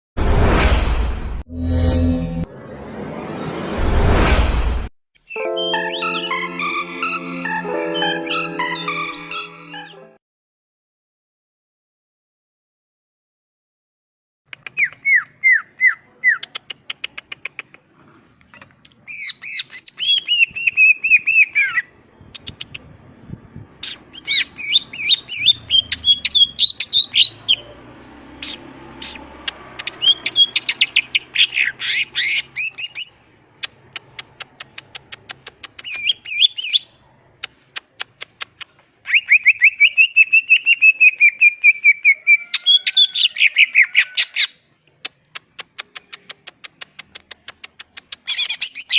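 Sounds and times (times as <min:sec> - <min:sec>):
bird singing clicking and warbling: 0:14.5 - 0:15.6, 0:16.3 - 0:20.5, 0:22.3 - 0:22.9, 0:28.4 - 0:31.3, 0:32.6 - 0:36.8, 0:37.4 - 0:41.8, 0:44.2 - 0:48.9.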